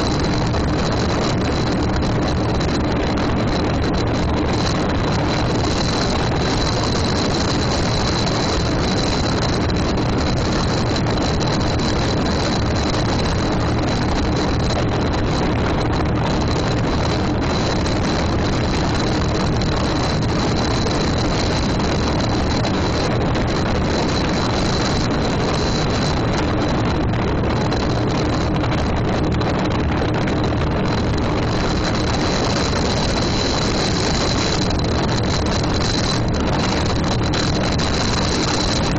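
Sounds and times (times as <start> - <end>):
faint steady hum: 0.0 - 38.9
motorboat engine running: 0.0 - 38.9.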